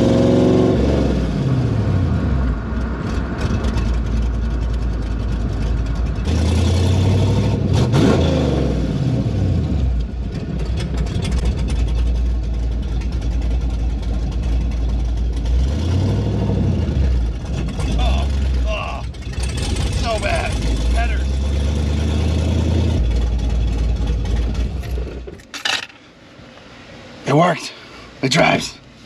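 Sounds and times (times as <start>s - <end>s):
loud vee eight engine revving: 0.0s - 2.7s, 6.2s - 10.0s, 15.4s - 24.8s.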